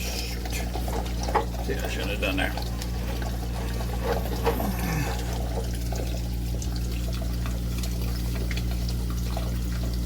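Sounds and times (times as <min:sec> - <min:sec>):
steady low hum: 0:00.0 - 0:10.0
water pouring and trickling: 0:00.0 - 0:10.0.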